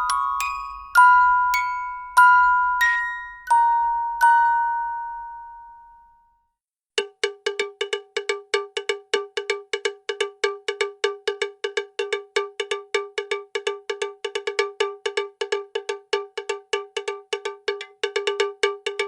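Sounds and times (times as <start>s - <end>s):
rhythmic cowbell-like strikes: 0.0s - 5.9s, 7.0s - 19.0s.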